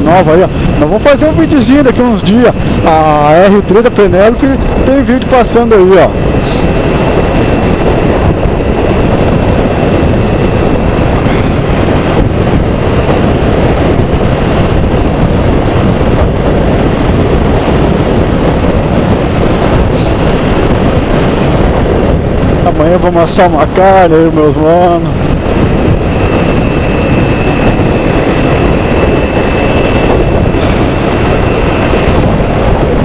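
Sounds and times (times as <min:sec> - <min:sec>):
wind rush on microphone: 0:00.0 - 0:33.0.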